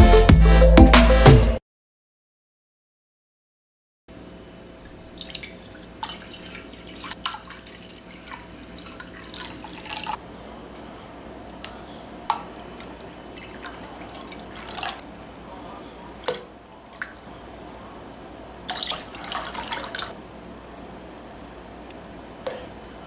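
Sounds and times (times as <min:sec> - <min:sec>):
water drips: 0:04.8 - 0:10.9, 0:11.5 - 0:15.1, 0:16.0 - 0:17.5, 0:18.6 - 0:20.5
water splashing: 0:04.9 - 0:10.2, 0:10.9 - 0:20.2.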